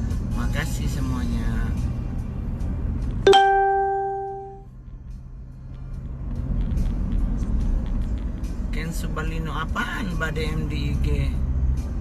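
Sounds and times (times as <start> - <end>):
clear pitched note: 3.3 - 4.6.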